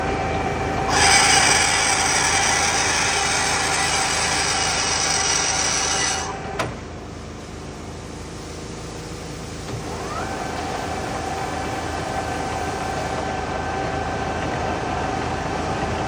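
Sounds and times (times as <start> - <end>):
metal lathe running: 0.2 - 6.5.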